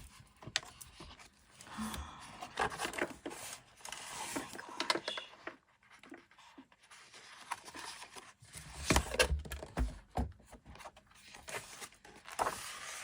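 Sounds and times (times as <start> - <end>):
paper pages rustling: 2.4 - 9.2, 10.8 - 13.0.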